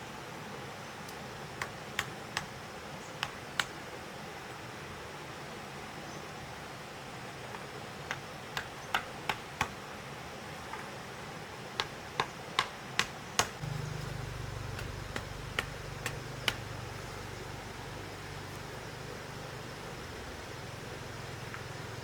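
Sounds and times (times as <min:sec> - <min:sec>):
sharp taps: 0:11.8 - 0:17.5
low steady hum: 0:13.6 - 0:22.0.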